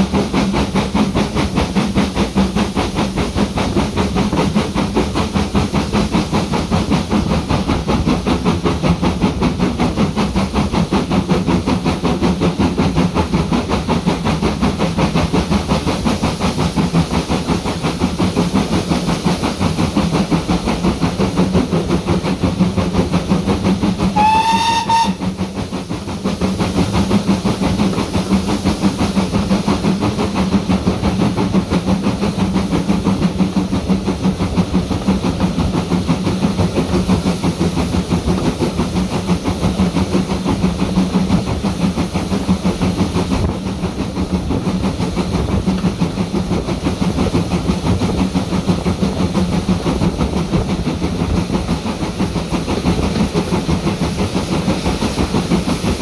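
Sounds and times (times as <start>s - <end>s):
locomotive engine droning: 17.2s - 56.0s
locomotive signal horn blast: 24.2s - 25.2s.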